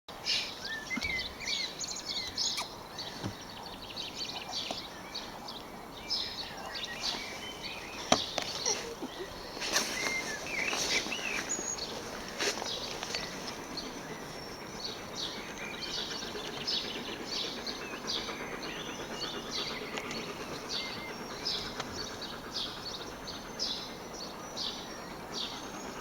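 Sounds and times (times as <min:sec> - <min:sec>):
small birds chirping and singing: 0:00.2 - 0:26.0.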